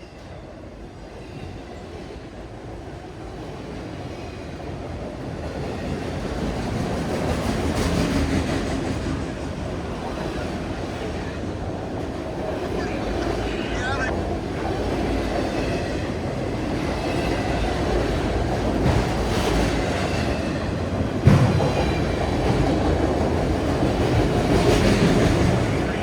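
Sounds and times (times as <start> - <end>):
train wheels clattering over rails: 3.5 - 11.1, 15.3 - 25.7.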